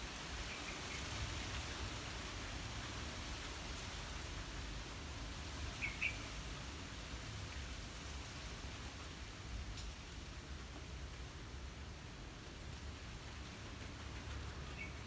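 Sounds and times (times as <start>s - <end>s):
breeze rustling through trees: 0.0s - 15.0s
small bird chirping: 14.6s - 15.0s.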